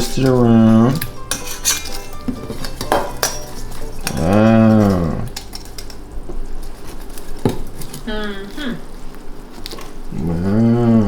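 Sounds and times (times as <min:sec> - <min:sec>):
clinks of kitchen utensils and dishes: 0:00.0 - 0:08.0.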